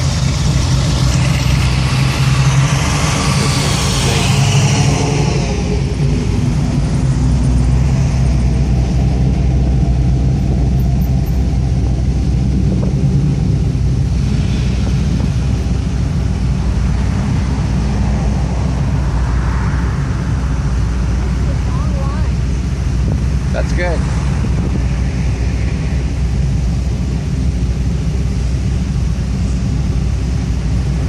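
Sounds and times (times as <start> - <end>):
car engines cruising past: 0.0 - 31.0.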